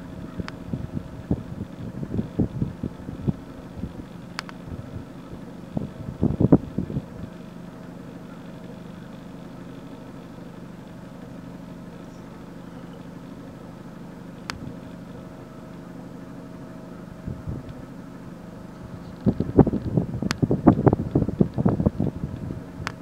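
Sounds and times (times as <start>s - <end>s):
vehicle engine idling: 0.0s - 23.0s
sharp click: 4.3s - 4.6s.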